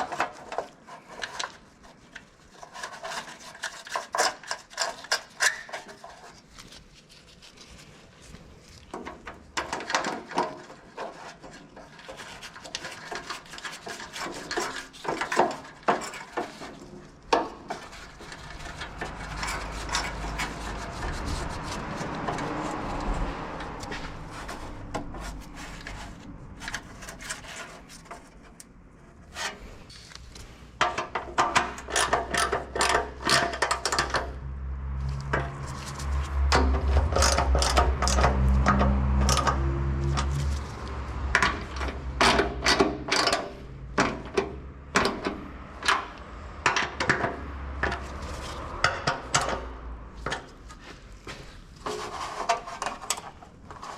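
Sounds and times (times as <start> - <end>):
scraping and rubbing on car parts: 0.0 - 53.9
tools clicking and knocking on metal: 30.8 - 34.5, 36.4 - 40.5, 41.2 - 50.8.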